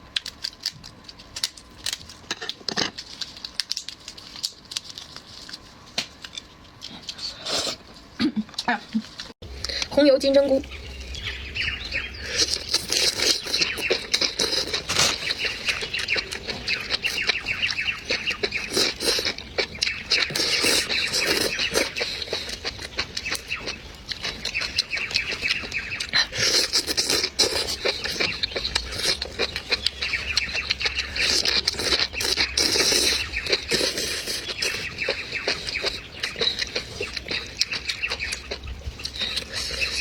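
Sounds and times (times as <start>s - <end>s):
wet chewing and slurping: 12.1s - 40.0s.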